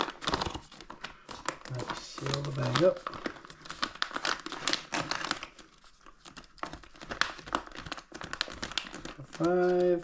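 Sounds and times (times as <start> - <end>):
food pouch crinkling: 0.0 - 10.0.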